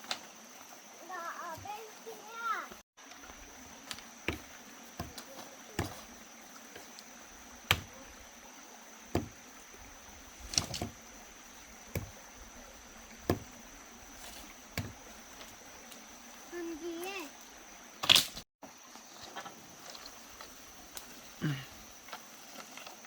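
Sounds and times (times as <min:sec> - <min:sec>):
knocks on wood: 0:05.8 - 0:06.0, 0:07.7 - 0:07.9, 0:09.1 - 0:09.4, 0:11.9 - 0:12.2, 0:13.2 - 0:13.5, 0:14.8 - 0:15.0.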